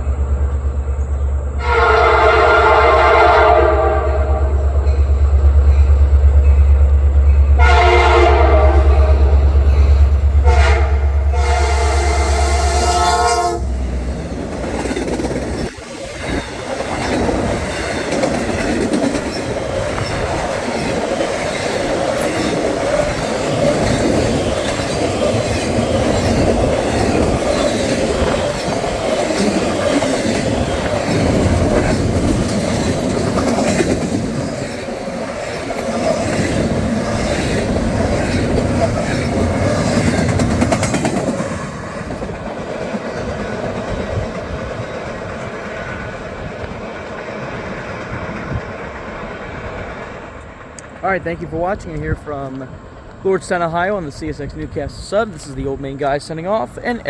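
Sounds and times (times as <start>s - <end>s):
deep locomotive engine rumble: 0.0s - 57.0s
locomotive horn blasts: 1.6s - 4.8s, 7.6s - 9.8s, 10.4s - 13.8s
wheel and rail clatter: 13.6s - 53.2s.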